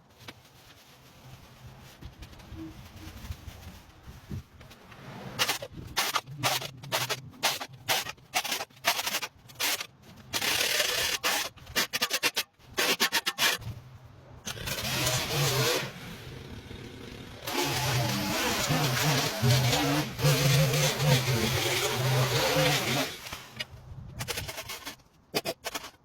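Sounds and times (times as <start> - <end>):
tool scraping pavement: 17.4 - 26.0.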